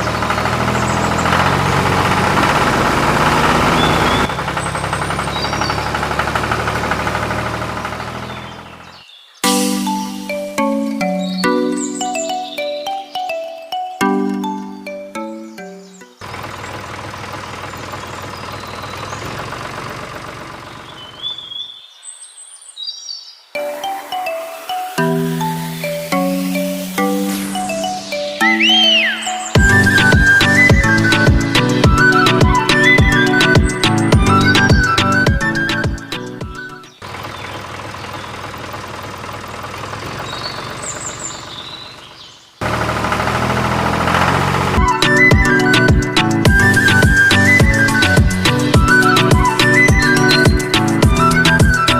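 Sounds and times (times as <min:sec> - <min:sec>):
engine running: 0:00.0 - 0:09.0, 0:16.2 - 0:21.6, 0:24.9 - 0:51.9
outdoor background noise: 0:00.0 - 0:09.9, 0:15.6 - 0:51.9
birds chirping: 0:00.0 - 0:42.8, 0:44.8 - 0:51.9.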